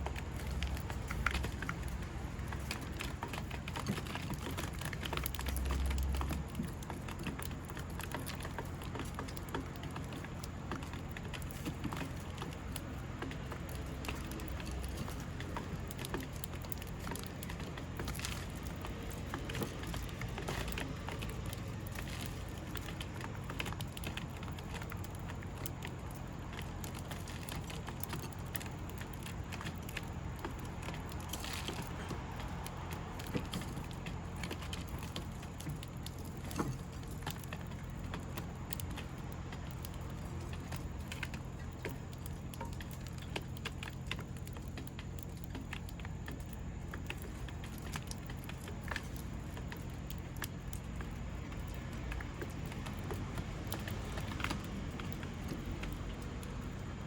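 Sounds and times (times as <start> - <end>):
steady low rumble: 0.0 - 8.9
light taps and clicks: 0.0 - 57.0.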